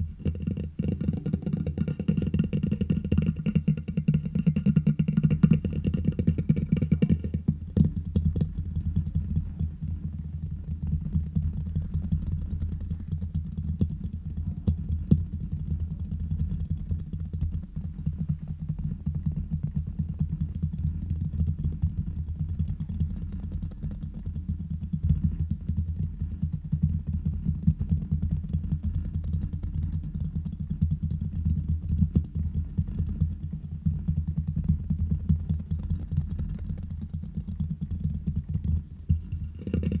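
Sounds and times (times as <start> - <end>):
fingertips tapping on microphone: 0.0 - 8.6, 38.6 - 40.0.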